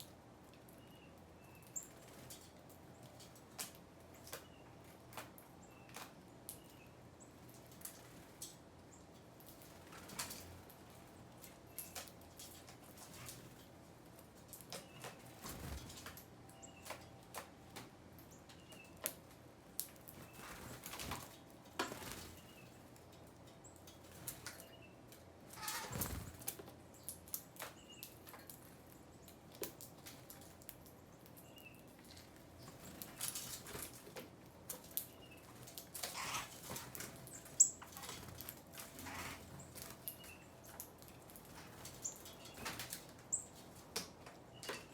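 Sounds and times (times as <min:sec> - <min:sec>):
birds pecking and tapping: 0:00.0 - 0:44.9
wing flutters: 0:25.6 - 0:26.6.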